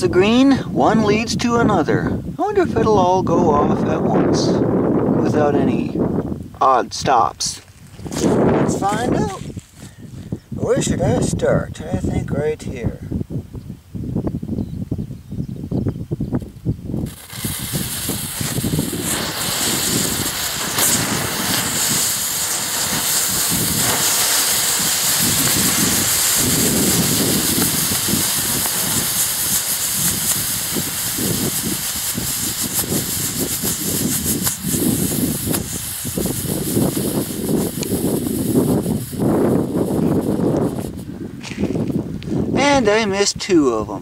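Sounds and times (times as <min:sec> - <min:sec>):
fireworks burning with loud hiss: 0:07.6 - 0:11.0, 0:16.4 - 0:42.4
faint crackles: 0:17.0 - 0:42.3.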